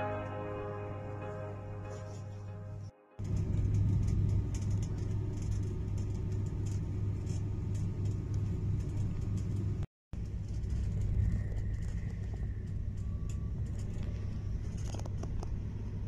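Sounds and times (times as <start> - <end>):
train rumbling on track: 3.2 - 14.9.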